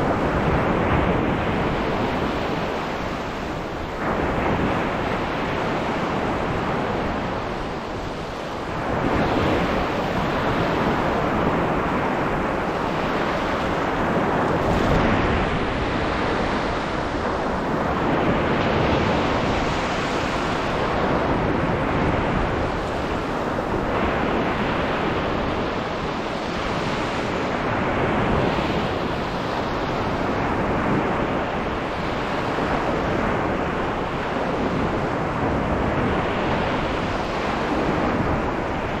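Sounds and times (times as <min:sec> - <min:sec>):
sea waves breaking on beach: 0:00.0 - 0:39.0.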